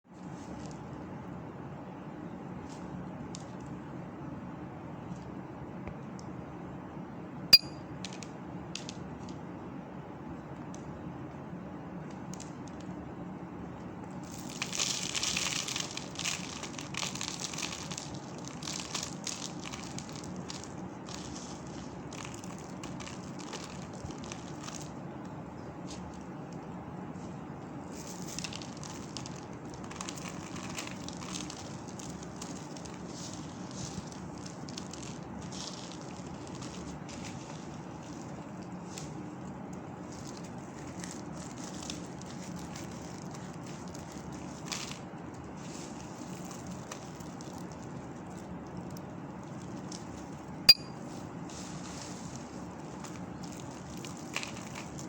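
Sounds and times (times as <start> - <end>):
soap balls crunching and crackling: 14.1 - 26.8, 27.6 - 50.6, 51.4 - 55.0.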